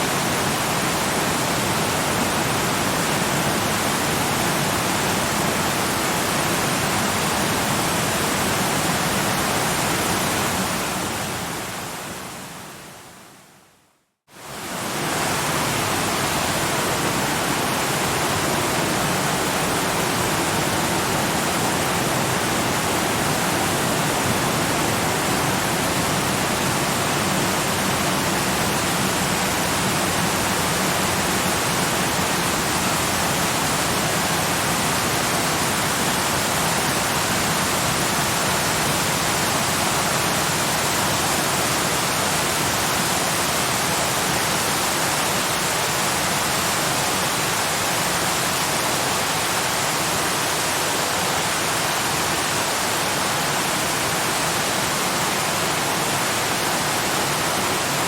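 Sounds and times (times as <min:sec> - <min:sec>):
waterfall rushing: 0:14.4 - 0:58.0.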